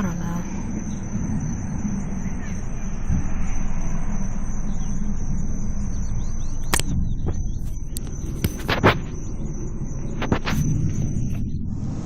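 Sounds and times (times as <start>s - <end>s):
deep outdoor rumble: 0.0s - 12.0s
high-pitched insect trill: 0.0s - 12.0s
sharp click: 6.6s - 7.0s.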